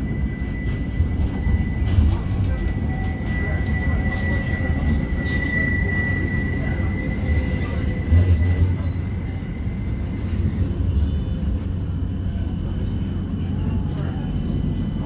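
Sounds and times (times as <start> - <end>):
tram wheels rumbling on rail: 0.0 - 15.0.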